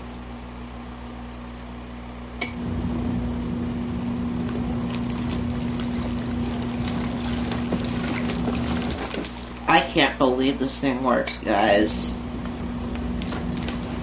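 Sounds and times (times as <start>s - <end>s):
washing machine motor hum: 0.0s - 14.0s
water churning in tub: 4.1s - 11.0s.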